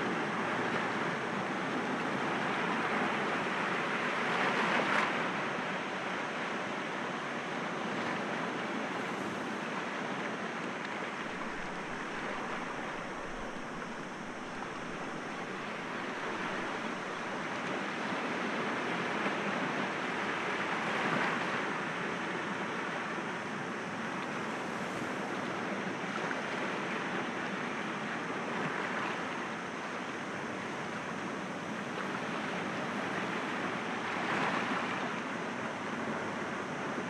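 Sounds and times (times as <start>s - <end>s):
waves breaking against rocks: 11.1s - 17.8s.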